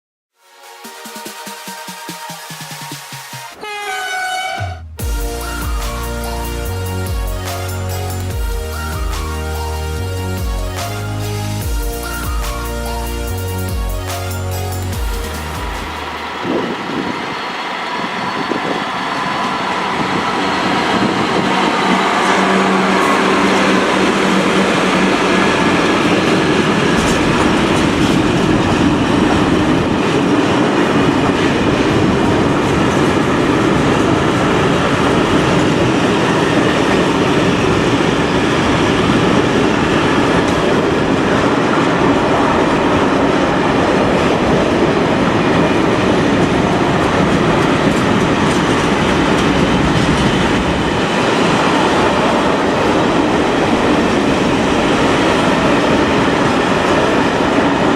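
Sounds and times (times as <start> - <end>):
train wheels clattering on rails: 14.1 - 57.9.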